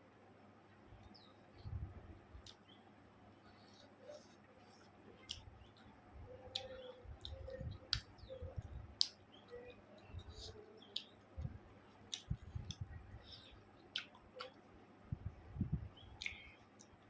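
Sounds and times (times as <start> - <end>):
wet mouth clicks while chewing: 2.4 - 2.6, 4.1 - 5.9, 6.5 - 14.6, 16.2 - 17.0.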